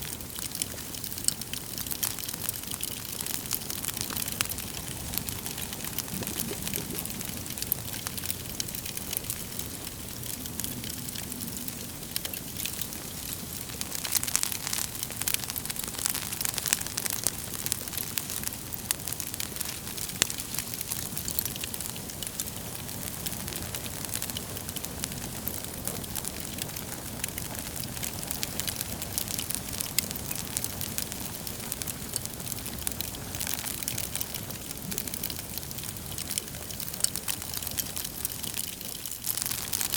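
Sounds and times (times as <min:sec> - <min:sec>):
wood fire crackling and popping: 0:00.0 - 0:39.9
soft fire hiss: 0:00.5 - 0:39.9.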